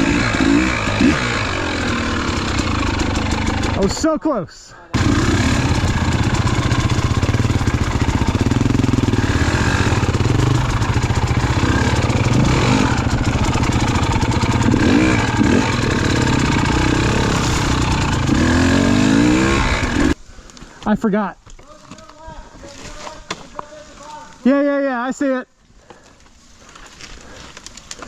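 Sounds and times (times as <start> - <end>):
dirt bike engine revving: 0.0 - 3.8, 5.0 - 20.2.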